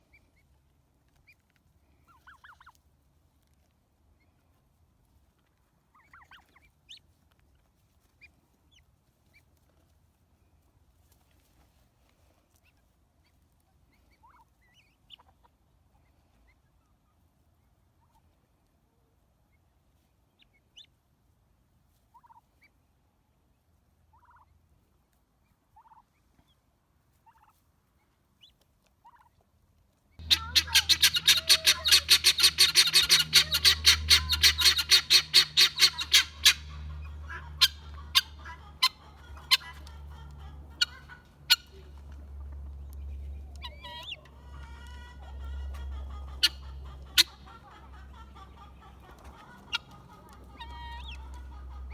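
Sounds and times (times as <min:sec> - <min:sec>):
harsh rapid guineafowl chatter: 0:00.0 - 0:09.9, 0:12.4 - 0:18.5, 0:21.9 - 0:22.8, 0:23.7 - 0:24.6, 0:25.4 - 0:29.4, 0:30.2 - 0:51.9
guineafowl calling: 0:02.0 - 0:02.8, 0:05.9 - 0:07.0, 0:14.0 - 0:15.5, 0:22.1 - 0:22.8, 0:30.2 - 0:51.9.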